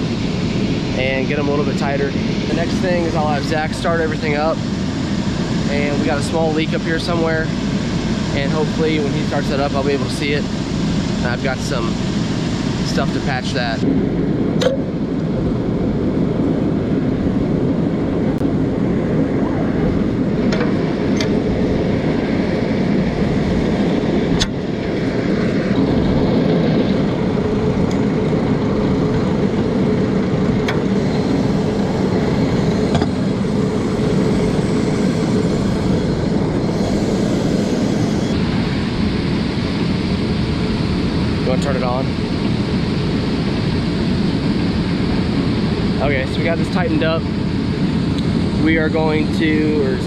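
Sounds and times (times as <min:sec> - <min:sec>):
faint constant hum: 0:00.0 - 0:50.0
loud machinery drone: 0:00.0 - 0:50.0.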